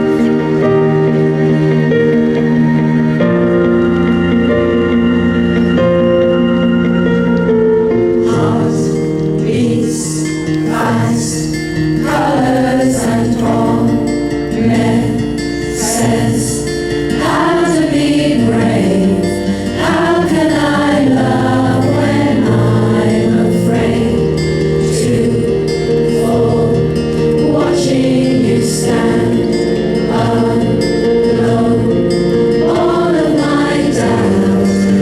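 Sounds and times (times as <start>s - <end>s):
sustained instrumental backing: 0.0s - 35.0s
group of voices singing: 8.1s - 35.0s.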